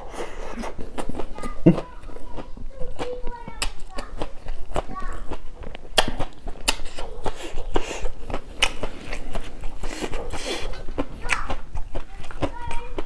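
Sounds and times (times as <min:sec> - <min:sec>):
chewing crunchy salad: 0:00.0 - 0:13.0
wet mouth clicks and smacks: 0:03.0 - 0:13.0.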